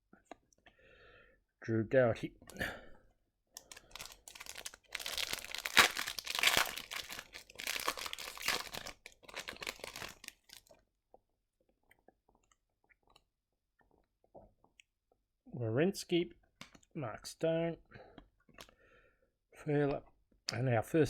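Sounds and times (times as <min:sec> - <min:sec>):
plastic wrapper tearing and crinkling: 0:03.6 - 0:10.7.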